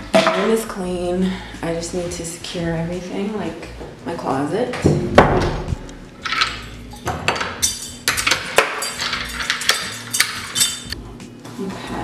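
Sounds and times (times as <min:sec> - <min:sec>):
metallic clinks and knocks: 0:06.2 - 0:11.0.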